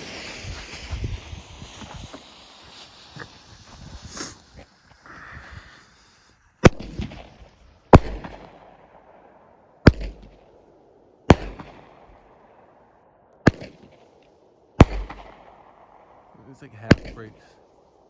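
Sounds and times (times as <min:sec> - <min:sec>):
firework bangs with crackling: 0:00.0 - 0:05.0, 0:06.6 - 0:09.1, 0:09.8 - 0:10.6, 0:11.3 - 0:12.4, 0:13.4 - 0:14.2, 0:14.8 - 0:17.6
firework fuse hiss: 0:00.0 - 0:06.8.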